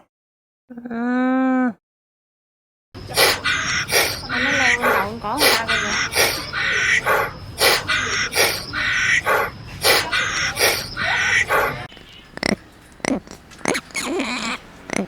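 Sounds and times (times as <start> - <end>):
animal calling noisily: 3.0 - 15.0
short sharp animal calls: 3.1 - 15.0.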